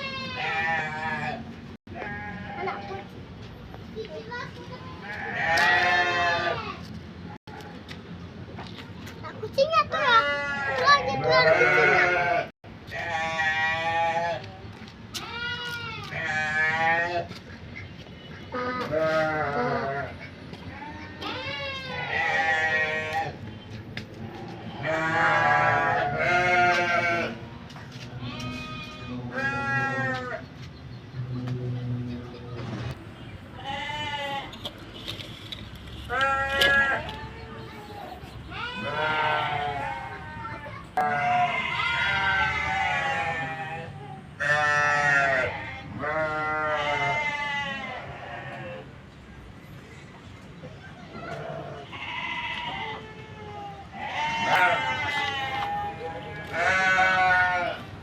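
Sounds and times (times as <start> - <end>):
farm animal bleating: 0.0 - 3.2, 5.0 - 7.8, 10.0 - 14.5, 15.1 - 17.5, 18.2 - 23.4, 24.2 - 27.4, 28.1 - 30.5, 33.5 - 48.9, 51.2 - 58.0.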